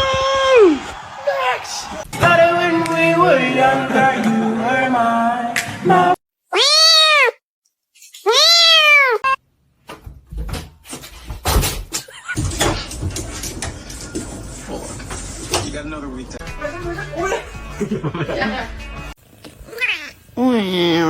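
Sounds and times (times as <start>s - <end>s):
cat meowing: 6.5s - 7.4s, 8.3s - 9.4s, 19.7s - 20.2s.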